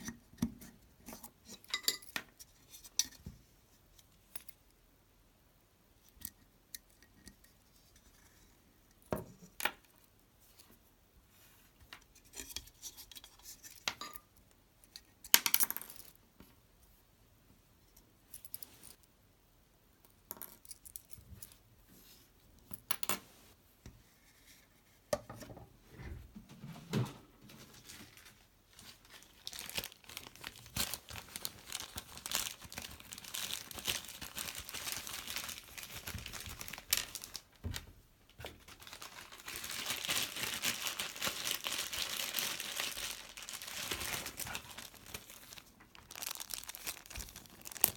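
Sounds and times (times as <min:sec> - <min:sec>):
crinkling scratchy rustle: 0:27.4 - 0:37.6, 0:38.4 - 0:47.9.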